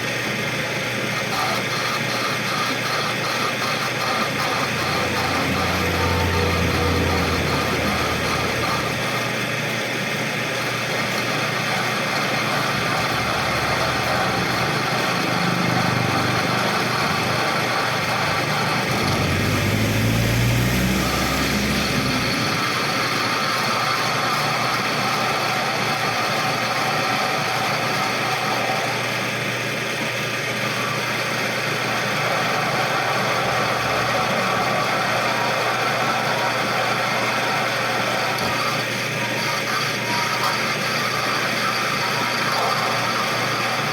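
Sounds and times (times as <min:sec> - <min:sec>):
machine running: 0:00.0 - 0:43.9
low hum rising in pitch: 0:04.6 - 0:09.2, 0:12.6 - 0:23.6.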